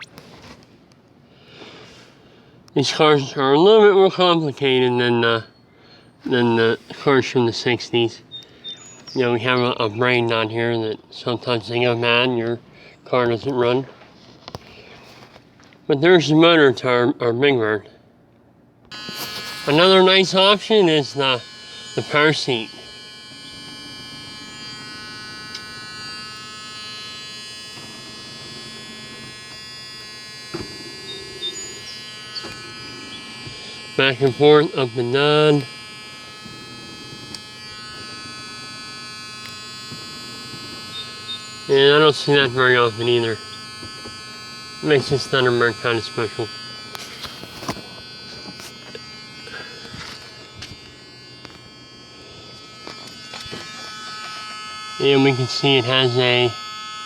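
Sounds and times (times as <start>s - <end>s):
high electrical buzz: 0.0s - 0.6s, 6.2s - 8.4s, 18.9s - 57.0s
power seat motor whining: 18.9s - 57.0s.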